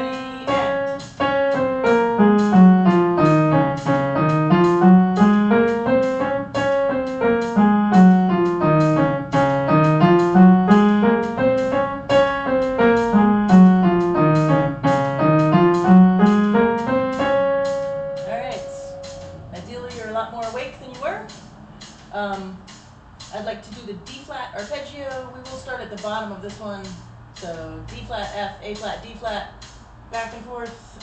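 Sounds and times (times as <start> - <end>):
piano playing scales: 0.0 - 20.6.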